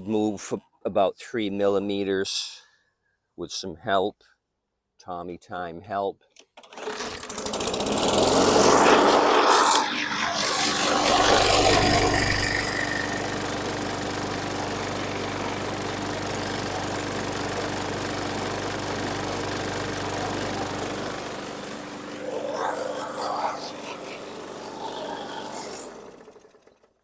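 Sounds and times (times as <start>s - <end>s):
lawn mower engine running: 6.6s - 27.0s.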